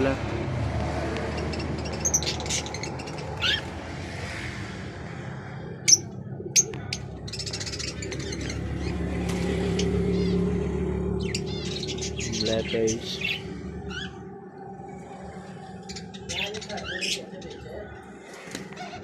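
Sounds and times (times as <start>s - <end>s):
caged birds chirping: 0.0s - 19.0s
bird trill: 1.4s - 3.7s, 5.9s - 14.3s
steady low hum: 2.6s - 19.0s.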